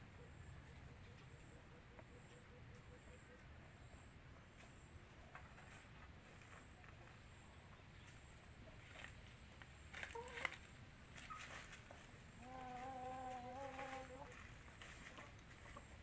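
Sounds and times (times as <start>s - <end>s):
farm animal long call: 12.4s - 15.3s.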